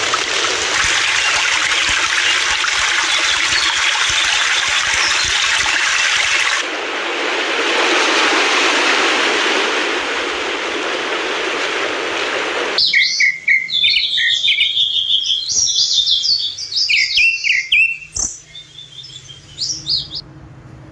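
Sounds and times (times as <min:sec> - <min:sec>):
rushing water hiss: 0:00.0 - 0:12.8
small birds chirping: 0:00.9 - 0:06.6, 0:12.8 - 0:20.2.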